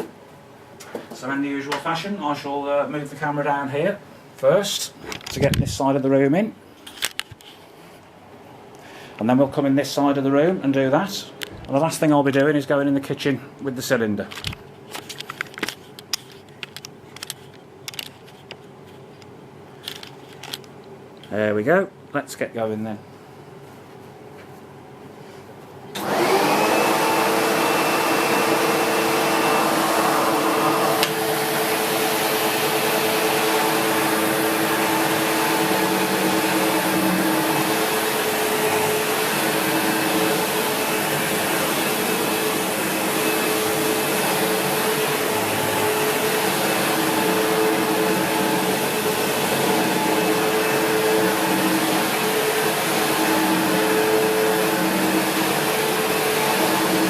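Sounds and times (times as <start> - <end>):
vacuum cleaner running: 0.0 - 0.2, 25.9 - 57.0
vacuum cleaner switch click: 30.9 - 31.3.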